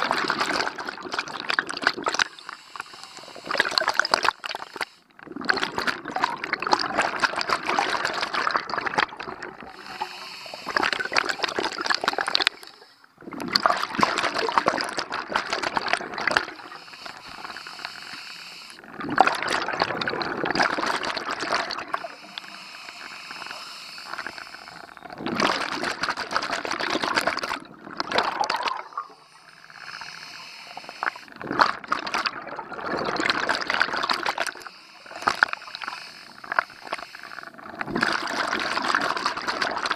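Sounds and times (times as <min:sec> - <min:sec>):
exhaled bubbles rushing underwater: 0:00.0 - 0:02.5, 0:03.2 - 0:18.0, 0:18.8 - 0:30.1, 0:31.0 - 0:39.9
regulator inhalation hiss: 0:02.2 - 0:05.1, 0:09.7 - 0:13.1, 0:16.6 - 0:18.8, 0:21.9 - 0:25.0, 0:28.9 - 0:31.3, 0:34.6 - 0:37.6.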